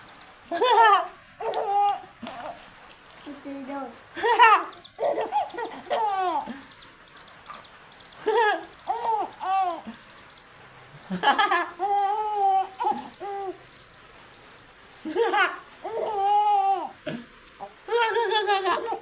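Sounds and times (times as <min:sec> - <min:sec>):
baby babbling and cooing: 0:01.4 - 0:02.6, 0:03.3 - 0:06.5, 0:08.9 - 0:09.9, 0:11.8 - 0:13.6, 0:15.8 - 0:17.0.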